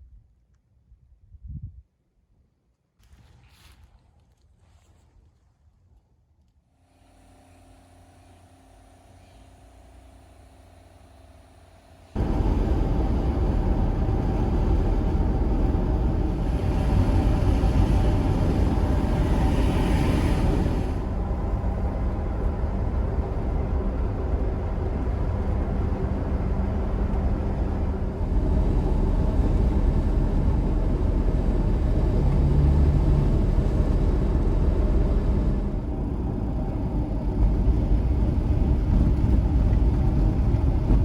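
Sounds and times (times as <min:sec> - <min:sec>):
faint hum: 0:06.8 - 0:41.0
road vehicle rumbling: 0:09.4 - 0:41.0.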